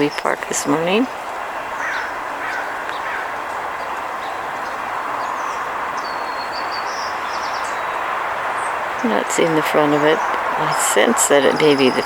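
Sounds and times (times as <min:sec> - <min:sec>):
outdoor rushing background noise: 0:00.0 - 0:12.0
crow cawing: 0:01.3 - 0:06.7
small bird chirping: 0:01.7 - 0:12.0.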